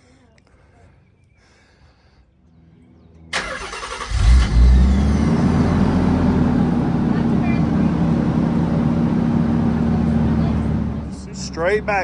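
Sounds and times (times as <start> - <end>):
car engine starting and idling: 3.3 - 12.0
starter motor cranking: 3.4 - 5.1.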